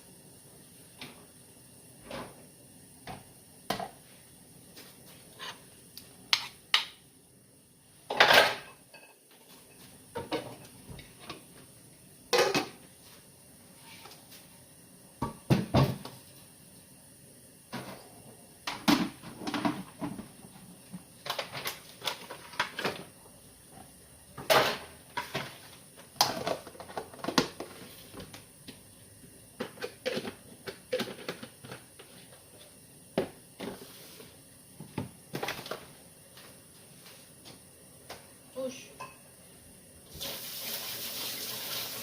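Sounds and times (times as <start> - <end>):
cookware and utensils clinking: 8.1 - 10.7, 12.3 - 12.8, 38.9 - 39.3.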